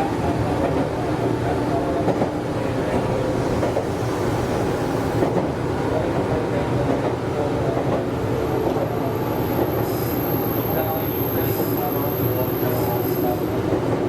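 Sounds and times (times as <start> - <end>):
train wheels rumbling on rail: 0.0 - 14.0
train motor hum: 2.0 - 7.1.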